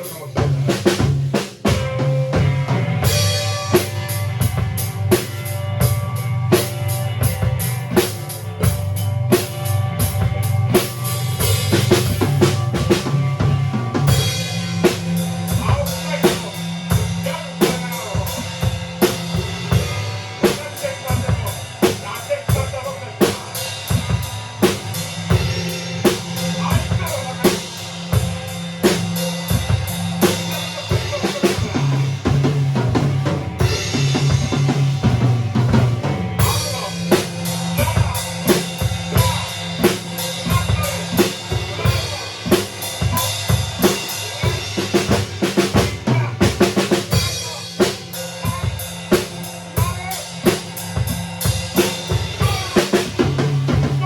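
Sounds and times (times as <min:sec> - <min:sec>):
drum kit playing: 0:00.0 - 0:54.0
sustained low bass notes: 0:23.8 - 0:50.0.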